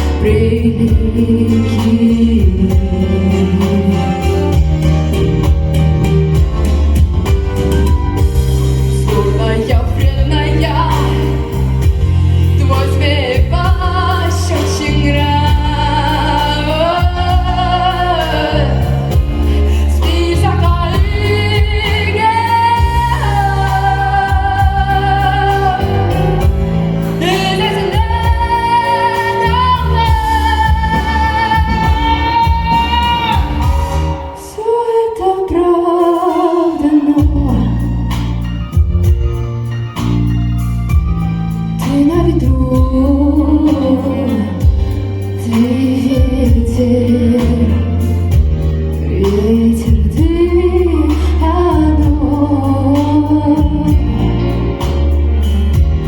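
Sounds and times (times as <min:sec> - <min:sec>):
woman singing pop song: 0:00.0 - 0:06.4, 0:07.0 - 0:56.0
backing track with bass and drums: 0:00.0 - 0:34.6, 0:35.4 - 0:56.0.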